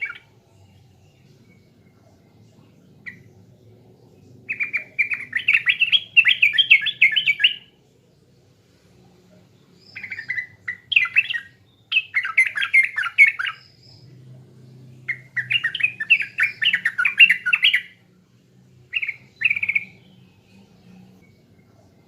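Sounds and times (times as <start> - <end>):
bird bubbly chattering song: 0.0 - 0.3, 4.5 - 7.7, 9.8 - 14.1, 15.0 - 18.0, 18.9 - 20.2.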